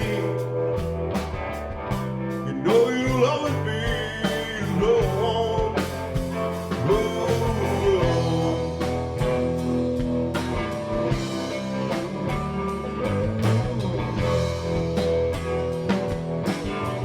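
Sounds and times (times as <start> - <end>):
blues-rock band playing: 0.0 - 17.0
electric guitar lead line bending: 0.0 - 17.0.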